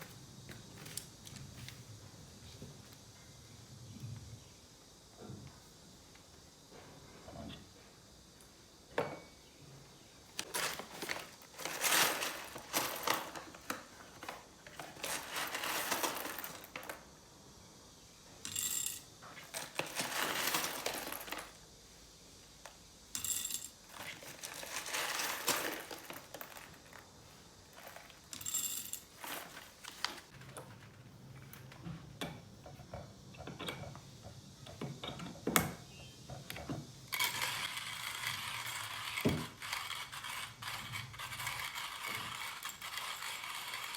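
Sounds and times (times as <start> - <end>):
coffee beans rattling into container: 10.4 - 17.1, 18.5 - 21.6, 23.2 - 30.3, 37.1 - 43.9.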